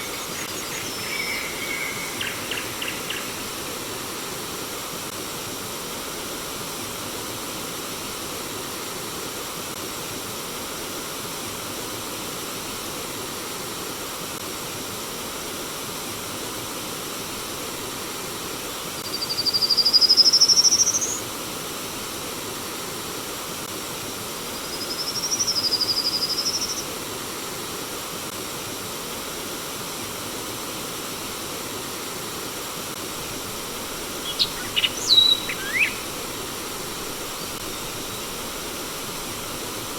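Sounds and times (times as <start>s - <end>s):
bird whistled calls: 0.0s - 3.4s, 34.2s - 36.7s
flowing water rushing: 0.0s - 19.0s, 26.8s - 39.9s
sharp bird chirps: 34.2s - 36.2s.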